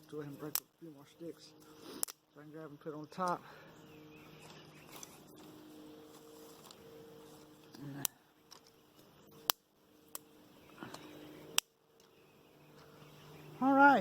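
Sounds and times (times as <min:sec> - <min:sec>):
dry sticks snapping: 0:00.0 - 0:00.7, 0:01.6 - 0:02.2, 0:07.6 - 0:12.2.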